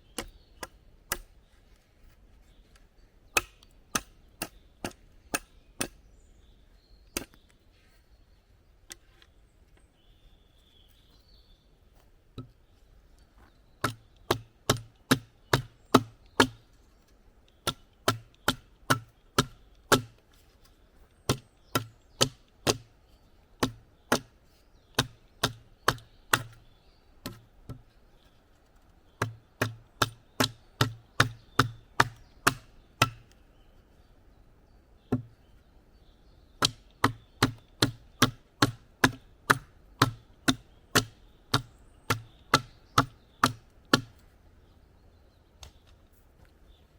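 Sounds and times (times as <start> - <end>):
wood being chopped: 0.1 - 1.3, 3.3 - 6.0, 7.2 - 7.5, 13.4 - 16.7, 17.5 - 20.2, 21.2 - 22.9, 23.6 - 26.6, 27.2 - 27.9, 29.1 - 33.4, 35.0 - 35.4, 36.6 - 44.3, 45.6 - 45.8.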